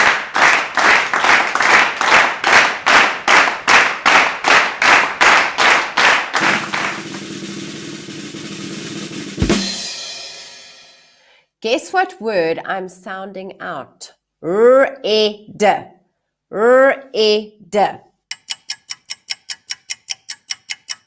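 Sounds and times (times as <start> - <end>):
sharp percussive strokes: 2.4 - 11.2.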